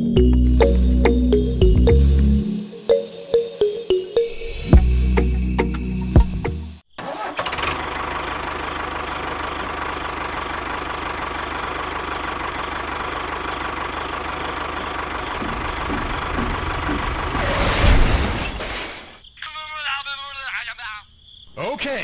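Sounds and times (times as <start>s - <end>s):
tractor engine running: 0.0s - 4.0s, 4.8s - 18.0s.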